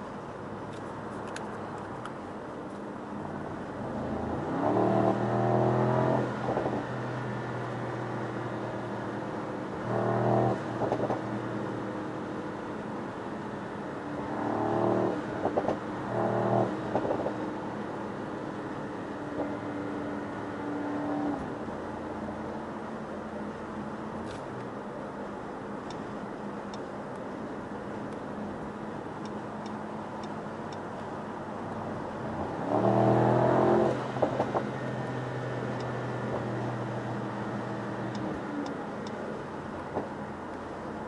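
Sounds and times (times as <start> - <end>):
tyre and road noise: 0.0 - 41.0
car engine accelerating: 3.2 - 8.9, 31.8 - 39.1.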